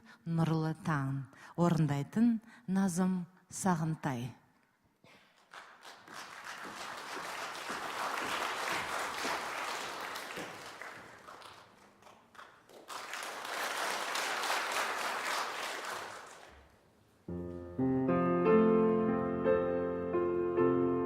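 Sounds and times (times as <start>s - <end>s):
audience applauding: 5.2s - 16.7s.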